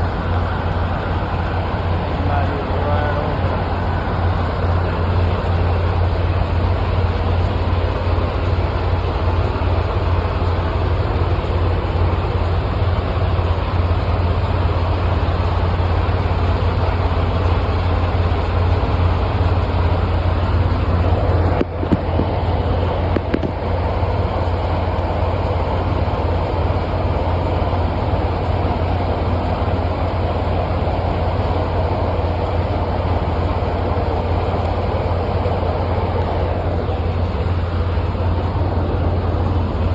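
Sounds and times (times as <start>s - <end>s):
diesel truck engine rumbling: 0.0s - 39.9s.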